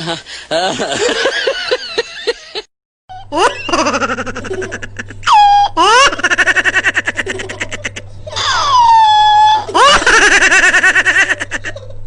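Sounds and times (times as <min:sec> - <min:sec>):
faint steady hum: 0:00.0 - 0:12.0
high-pitched rapid laughter: 0:03.3 - 0:12.0
squeals rising in pitch: 0:08.4 - 0:09.7.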